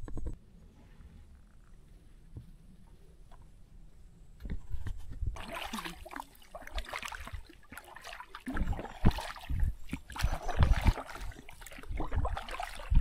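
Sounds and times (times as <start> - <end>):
paddles splashing in water: 5.4 - 13.0.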